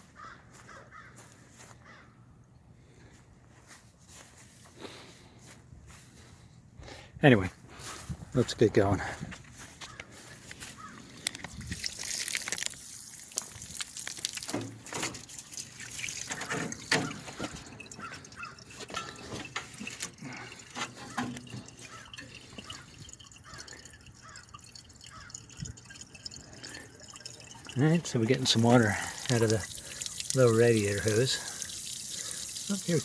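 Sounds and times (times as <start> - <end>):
water running and dripping: 11.2 - 33.0.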